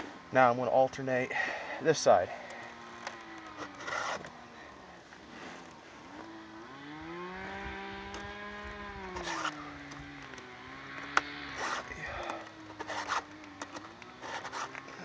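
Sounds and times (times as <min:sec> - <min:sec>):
distant chainsaw revving: 0:01.3 - 0:15.0
chain and file scraping: 0:03.6 - 0:04.3, 0:09.2 - 0:09.6, 0:11.6 - 0:15.0.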